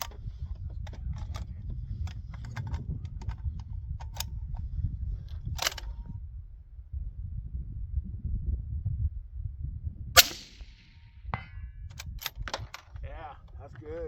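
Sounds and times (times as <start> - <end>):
rifle bolt clicks and rattles: 0.0 - 4.7, 5.3 - 6.1, 11.9 - 14.0
steady low rumble: 0.0 - 14.0
sharp metal clack: 10.2 - 10.8.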